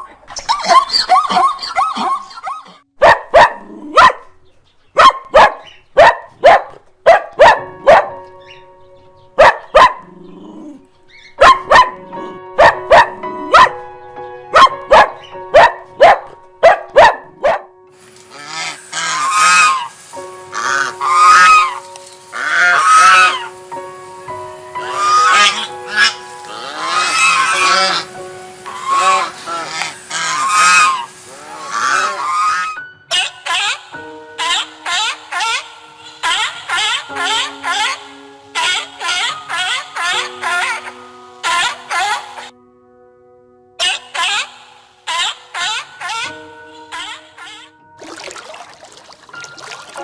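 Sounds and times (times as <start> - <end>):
dog barking: 3.0 - 4.3, 5.0 - 8.2, 9.4 - 10.2, 11.4 - 13.8, 14.5 - 17.7, 41.5 - 42.5
background music steady notes: 3.0 - 50.0
goose honking: 18.3 - 23.6, 24.7 - 42.5.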